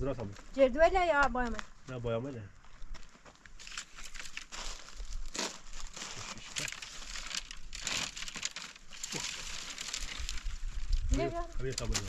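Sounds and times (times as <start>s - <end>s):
rustling and crackling: 2.6s - 12.0s.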